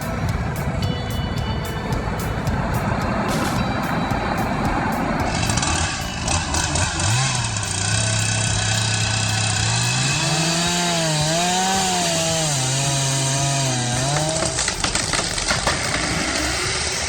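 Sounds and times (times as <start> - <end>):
chainsaw cutting wood: 5.3 - 17.0
wood cracking and snapping: 11.4 - 16.4.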